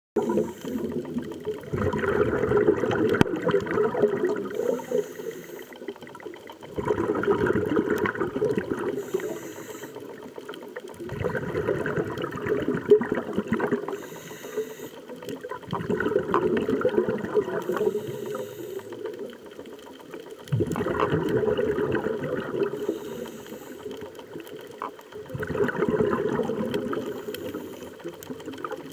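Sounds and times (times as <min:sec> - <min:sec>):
regulator inhale hiss: 0:00.2 - 0:01.1, 0:04.4 - 0:05.9, 0:08.8 - 0:10.3, 0:13.8 - 0:15.2, 0:17.6 - 0:19.1, 0:22.6 - 0:24.2, 0:27.0 - 0:28.1
exhaled bubbles underwater: 0:00.2 - 0:28.9.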